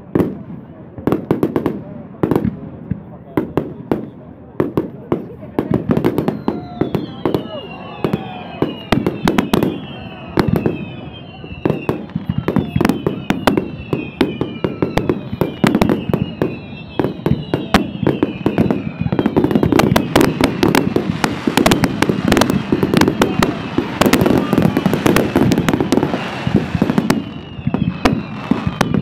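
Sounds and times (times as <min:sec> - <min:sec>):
fireworks bangs and crackle: 0:00.0 - 0:29.0
high falling whistle: 0:06.2 - 0:29.0.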